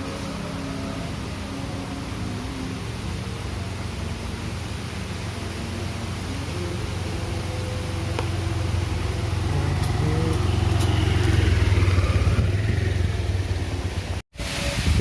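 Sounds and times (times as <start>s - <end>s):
strong wind rumbling on microphone: 14.4s - 15.0s.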